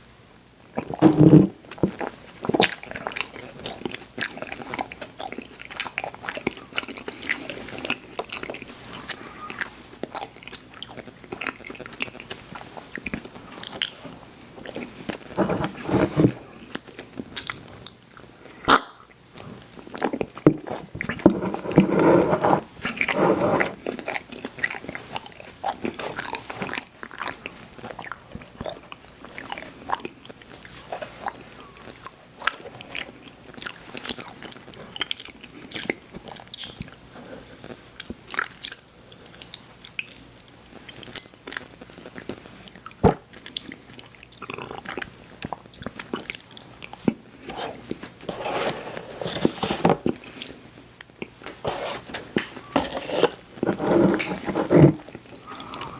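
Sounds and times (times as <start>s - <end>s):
wet mouth sounds: 8.6s - 9.8s.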